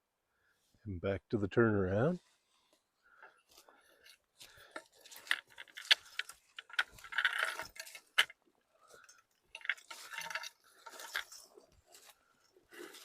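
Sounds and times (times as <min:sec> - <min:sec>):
twigs snapping: 0:04.4 - 0:12.1
footsteps crunching through undergrowth: 0:09.8 - 0:13.0.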